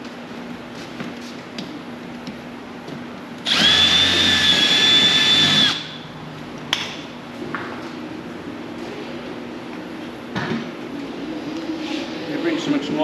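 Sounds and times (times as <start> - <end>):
power drill whining: 3.5 - 5.9.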